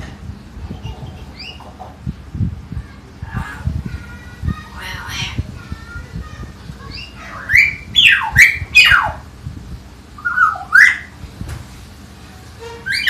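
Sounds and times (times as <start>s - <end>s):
myna bird whistles: 10.2s - 11.1s.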